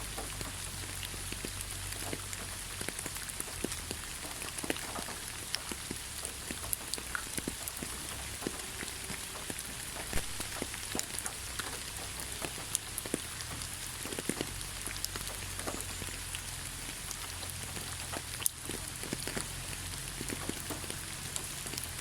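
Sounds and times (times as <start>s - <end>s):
rain falling on leaves: 0.0s - 22.0s.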